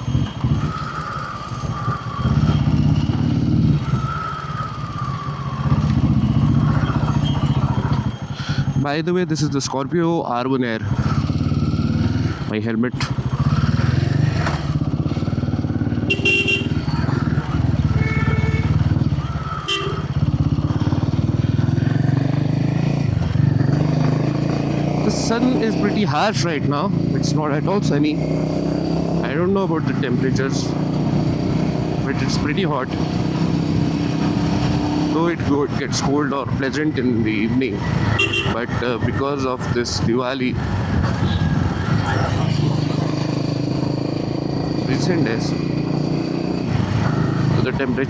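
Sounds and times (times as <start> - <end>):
motorcycle engine while riding: 0.0 - 8.8, 10.4 - 48.0
motorcycle engine running: 13.1 - 25.6, 37.8 - 38.8, 40.6 - 48.0.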